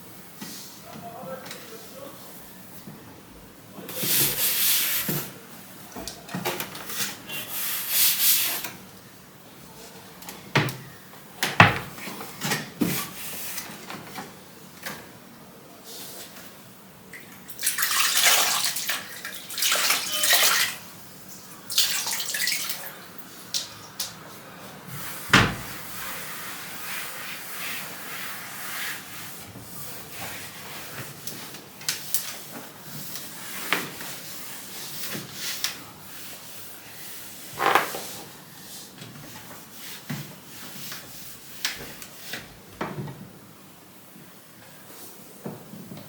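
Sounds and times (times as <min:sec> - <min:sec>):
water running and splashing: 0:17.5 - 0:20.8, 0:21.7 - 0:22.9.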